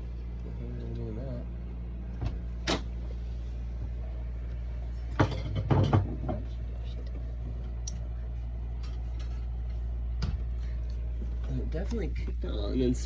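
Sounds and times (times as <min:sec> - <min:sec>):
pump knocking and sputtering: 0:05.1 - 0:06.6.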